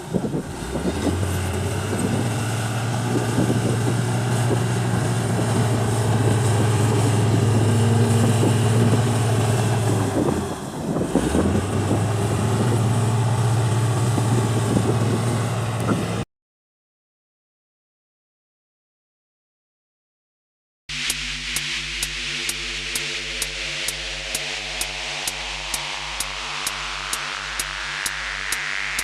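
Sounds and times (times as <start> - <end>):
diesel engine humming: 0.0 - 16.2.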